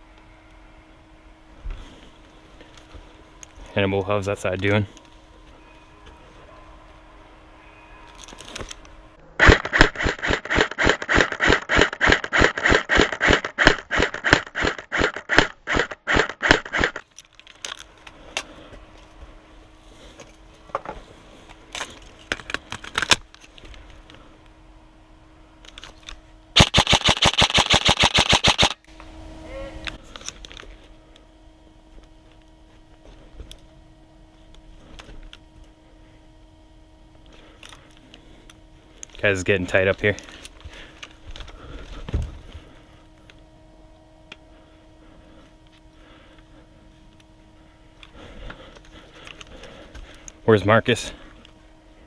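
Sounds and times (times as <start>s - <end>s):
airsoft gun shots: 9.4s - 17.0s, 26.6s - 28.8s.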